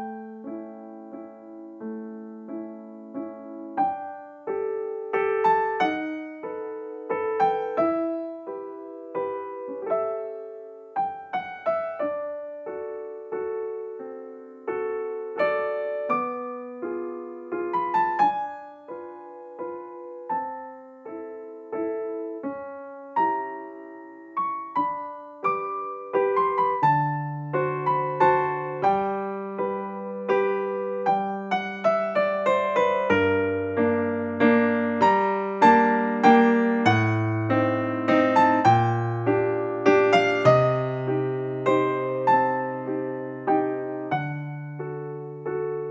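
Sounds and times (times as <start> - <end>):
piano music: 0.0 - 45.9.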